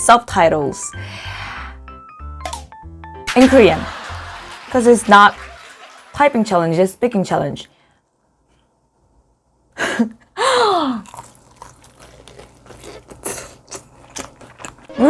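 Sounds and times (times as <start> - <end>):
crunching crispy chicken: 11.0 - 14.8.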